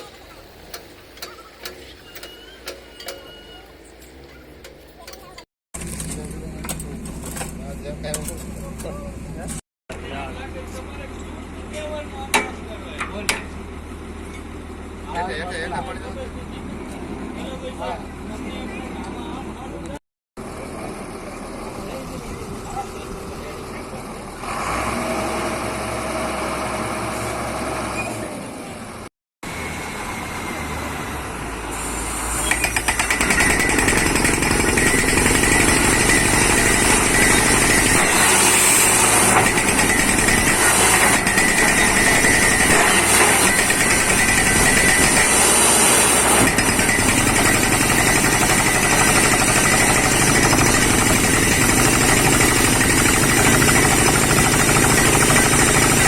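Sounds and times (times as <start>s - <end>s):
drilling rig engine: 29.4s - 56.0s
drill hammering clatter: 32.4s - 56.0s.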